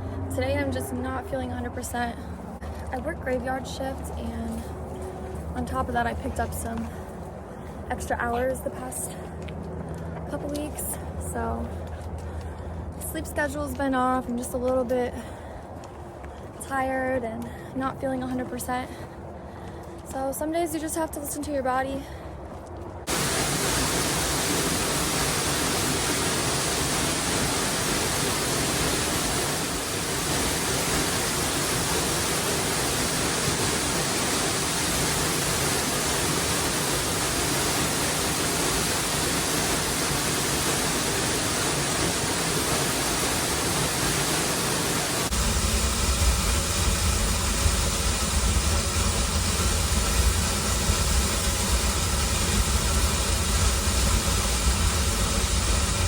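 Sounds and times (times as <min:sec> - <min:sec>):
waterfall rushing: 0:23.1 - 0:56.0.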